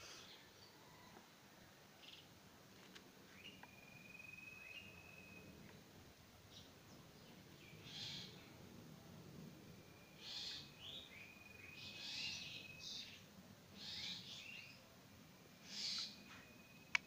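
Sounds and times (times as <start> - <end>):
thin steady whistle: 3.6 - 5.5
bird calling harshly: 15.6 - 16.2.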